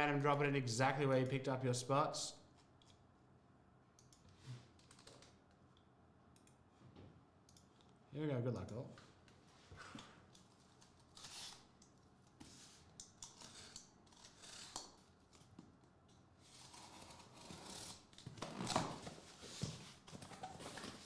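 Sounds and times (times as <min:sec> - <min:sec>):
plastic wrap cut and torn: 0:13.3 - 0:15.5.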